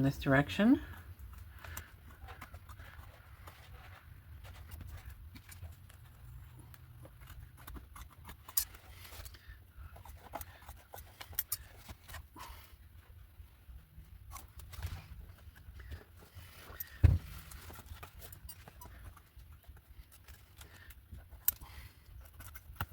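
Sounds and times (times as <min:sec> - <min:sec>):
scissors snipping paper: 0:04.5 - 0:12.4, 0:16.6 - 0:22.9.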